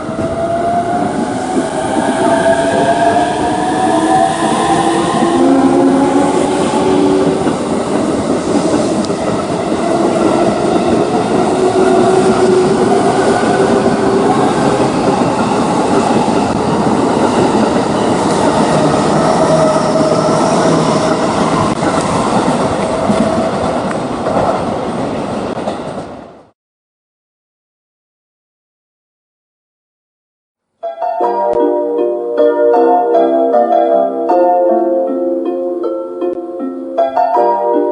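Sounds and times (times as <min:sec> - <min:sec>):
electric train rumbling on rails: 0:00.0 - 0:26.5.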